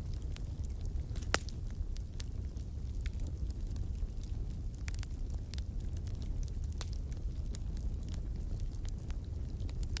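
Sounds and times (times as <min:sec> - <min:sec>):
fire crackling: 0:00.0 - 0:10.0
low rumble of flames: 0:00.0 - 0:10.0
sharp pops and snaps: 0:01.1 - 0:01.6.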